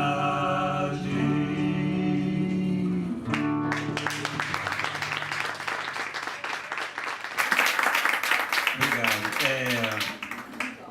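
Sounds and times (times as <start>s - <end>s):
audience clapping: 3.3s - 10.9s.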